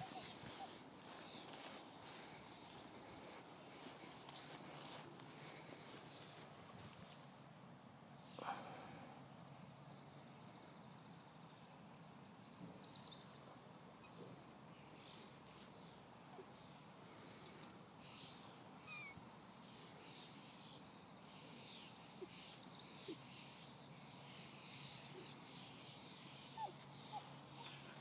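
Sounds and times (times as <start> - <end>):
faint high bird calls: 0.0 - 5.0, 18.0 - 20.8
songbird singing: 0.0 - 7.1, 8.1 - 28.0.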